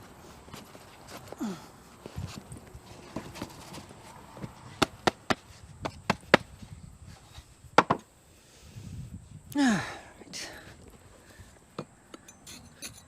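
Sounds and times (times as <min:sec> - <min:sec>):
sharp knocks on metal casting: 0:07.8 - 0:08.0.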